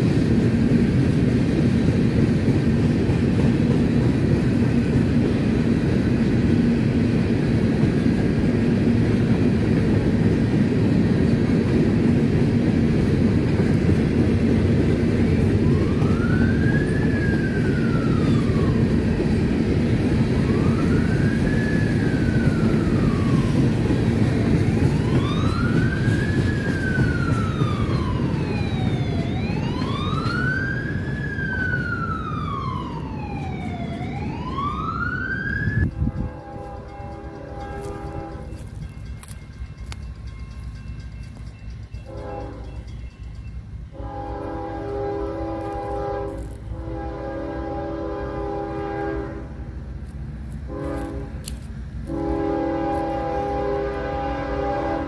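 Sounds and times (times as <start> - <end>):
train rumbling past: 0.0 - 55.0
emergency siren wailing: 15.2 - 38.6.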